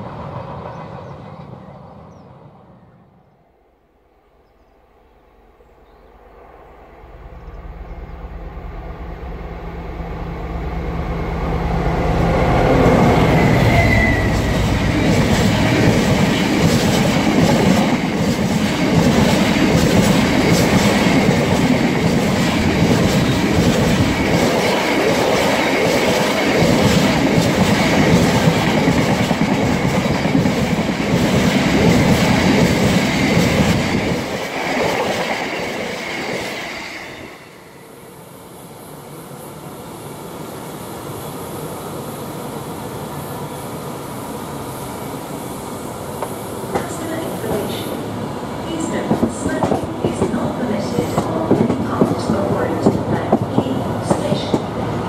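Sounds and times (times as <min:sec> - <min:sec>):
locomotive engine passing: 0:05.0 - 0:38.2.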